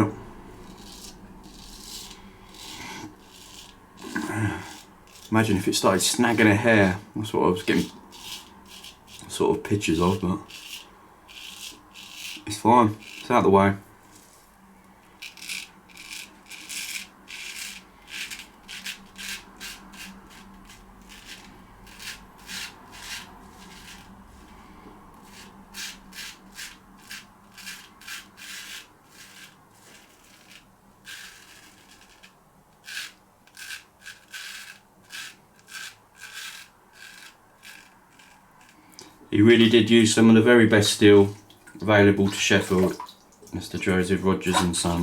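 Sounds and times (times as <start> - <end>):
razor scratching through stubble: 0.6 - 7.0, 7.6 - 13.4, 15.2 - 24.5, 25.2 - 38.9.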